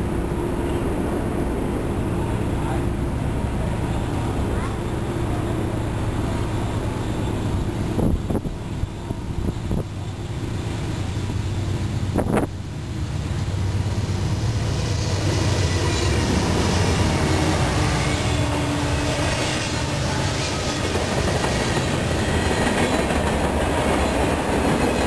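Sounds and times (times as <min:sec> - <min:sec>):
diesel locomotive engine drone: 0:00.0 - 0:25.0
train wheels hissing on rail: 0:05.2 - 0:25.0.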